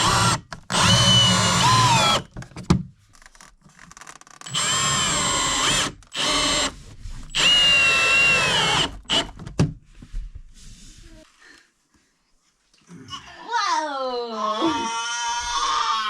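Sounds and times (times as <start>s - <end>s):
power drill running: 0.0s - 2.3s, 4.4s - 9.4s.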